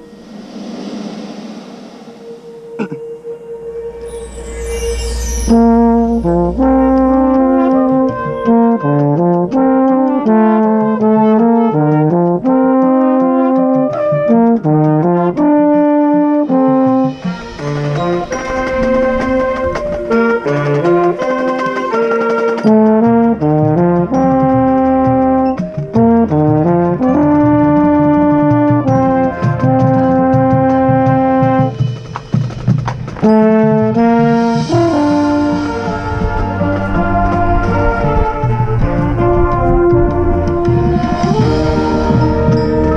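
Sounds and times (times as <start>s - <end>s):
baritone horn: 2.4s - 42.9s
marching band brass playing: 5.5s - 42.9s.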